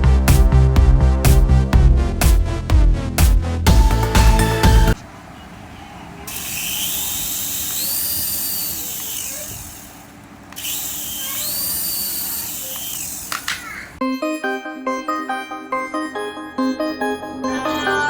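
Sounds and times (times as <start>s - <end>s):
music: 0.0s - 5.0s, 14.0s - 18.0s
small electric motor whining: 6.3s - 14.0s.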